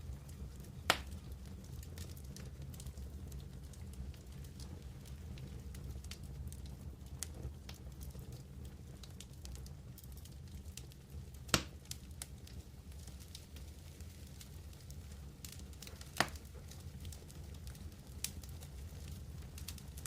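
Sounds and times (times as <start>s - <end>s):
campfire crackling: 0.0s - 20.0s
low steady rumble: 0.0s - 20.0s
fire pops: 0.1s - 20.0s.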